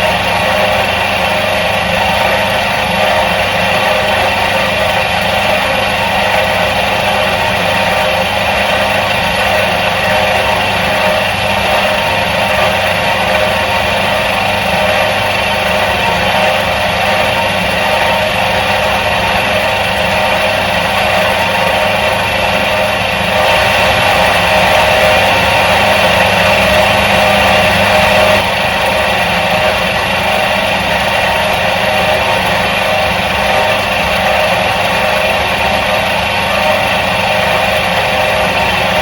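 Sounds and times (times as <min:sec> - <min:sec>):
washing machine motor humming: 0:00.0 - 0:39.0.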